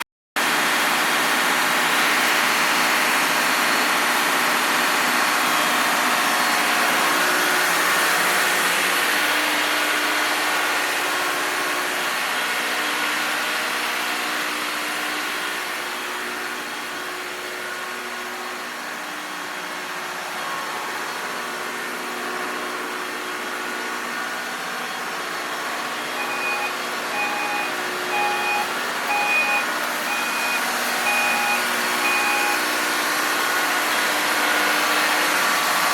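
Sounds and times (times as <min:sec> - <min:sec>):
engine room machinery humming: 0:00.4 - 0:35.9
repeating electronic beep: 0:26.2 - 0:32.7.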